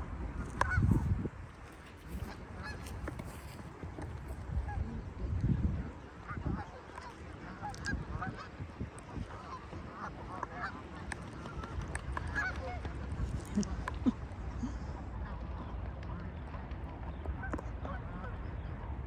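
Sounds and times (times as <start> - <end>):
geese honking: 0.4 - 5.0, 6.0 - 13.7.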